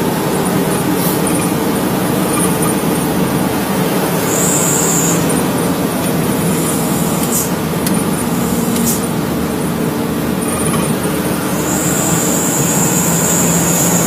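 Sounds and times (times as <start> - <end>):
truck engine running: 0.0 - 14.0
tyre and road noise: 0.0 - 14.0
high-pitched squeaks and ticks: 0.3 - 3.2.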